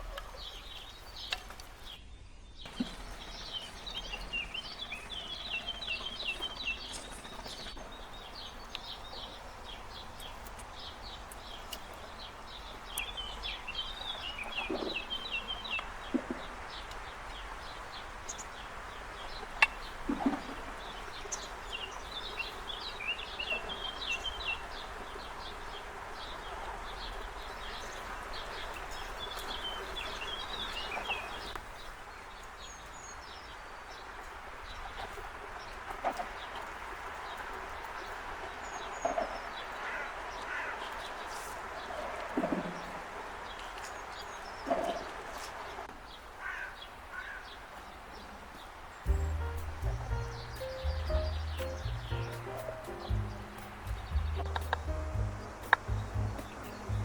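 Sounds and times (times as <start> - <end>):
small birds chirping: 0.0 - 57.0
steady background rush: 2.7 - 31.6, 49.0 - 57.0.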